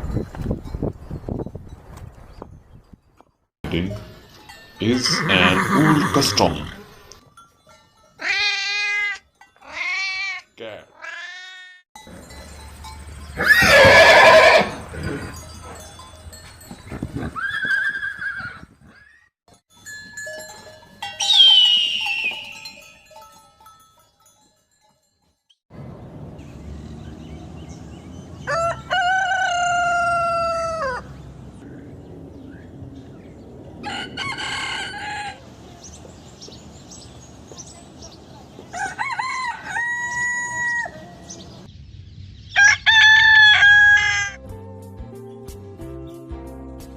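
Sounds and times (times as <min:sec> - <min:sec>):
rooster crowing: 0:28.4 - 0:31.1, 0:33.8 - 0:35.5, 0:38.7 - 0:41.3, 0:42.6 - 0:44.4.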